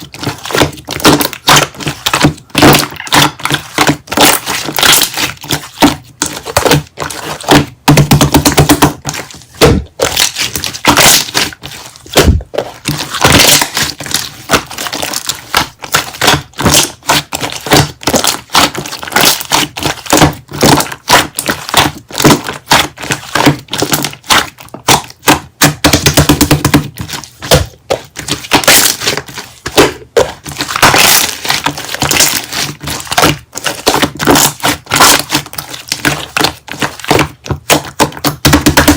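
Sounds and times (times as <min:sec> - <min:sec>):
slime squeezed with sticky pops: 0:00.0 - 0:38.9.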